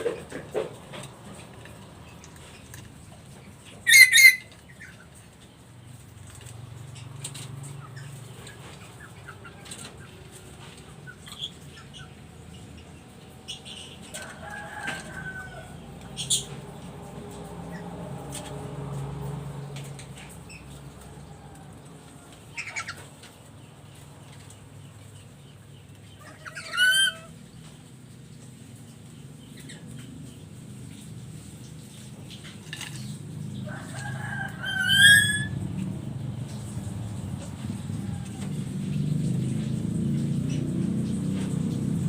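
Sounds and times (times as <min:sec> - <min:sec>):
parrot call: 0:03.8 - 0:04.6, 0:26.2 - 0:27.3, 0:34.5 - 0:35.6.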